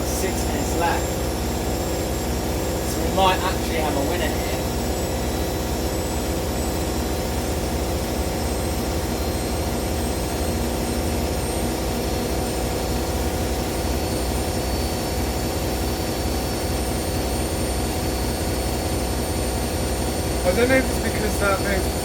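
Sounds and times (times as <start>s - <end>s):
washing machines spinning: 0.0s - 22.0s.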